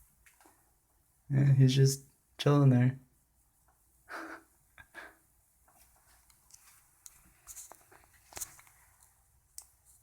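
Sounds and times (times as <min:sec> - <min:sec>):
faint clicks and rustles: 0:00.0 - 0:00.8, 0:05.6 - 0:10.0.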